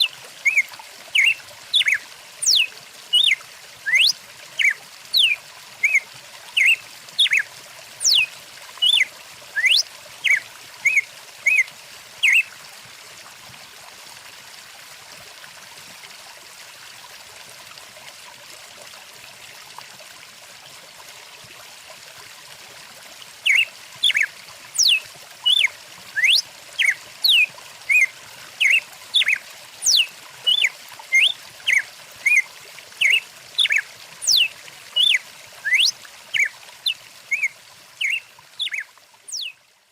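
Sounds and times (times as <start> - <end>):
songbirds chirping and whistling: 0.0 - 6.0, 6.6 - 7.4, 8.0 - 11.6, 12.2 - 12.4, 23.5 - 32.4, 33.0 - 36.5, 37.3 - 39.5
flowing stream: 0.0 - 39.9.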